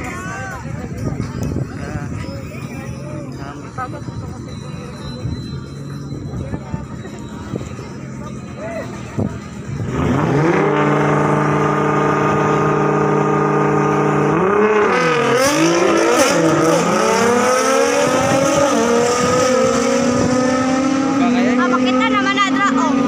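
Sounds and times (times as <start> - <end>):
drag car engine revving: 9.5 - 23.0.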